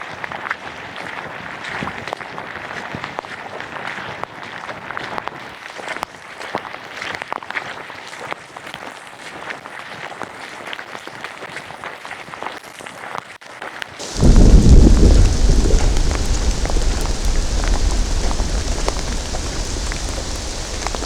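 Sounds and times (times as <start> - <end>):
steady rain with drop hits: 14.0 - 21.0.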